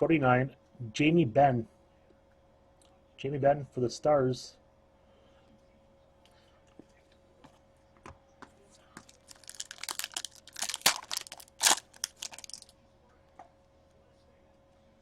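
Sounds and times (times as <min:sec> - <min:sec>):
plastic packaging crinkling: 0:09.1 - 0:12.7.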